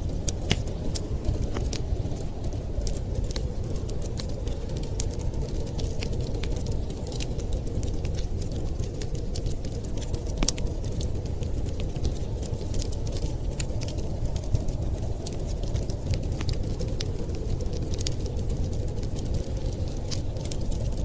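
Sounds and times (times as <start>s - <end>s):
low fire rumble: 0.0s - 21.0s
wood fire crackling and popping: 0.0s - 21.0s.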